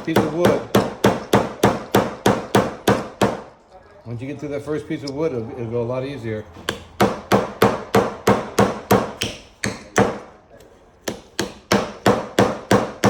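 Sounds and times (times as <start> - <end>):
hammering a nail into wood: 0.0 - 3.5, 6.7 - 10.3, 11.0 - 13.0.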